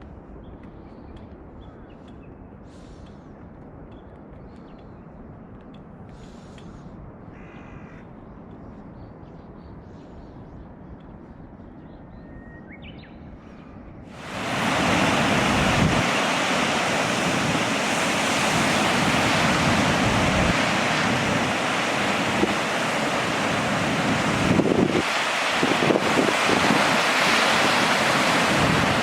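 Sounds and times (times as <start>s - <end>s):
wind buffeting microphone: 0.0s - 29.0s
ocean waves breaking: 14.1s - 29.0s.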